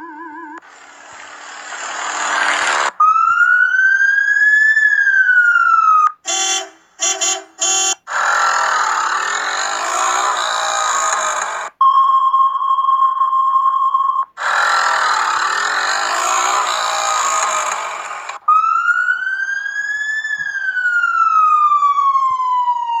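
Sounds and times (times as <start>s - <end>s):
loud noisy sound: 0.6s - 3.0s, 8.1s - 11.8s, 14.4s - 18.4s
emergency vehicle siren wailing: 2.2s - 6.3s, 8.1s - 11.7s, 14.4s - 23.0s.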